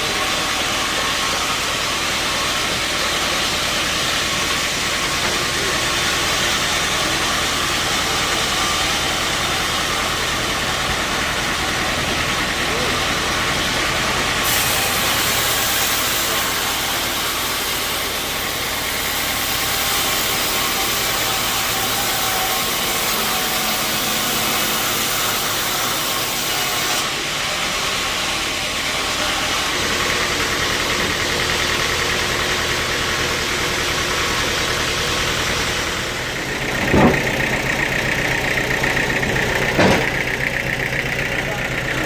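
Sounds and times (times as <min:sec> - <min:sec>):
sawmill machinery hum and hiss: 0:00.0 - 0:42.0
sharp knock: 0:36.8 - 0:37.4, 0:39.8 - 0:40.2.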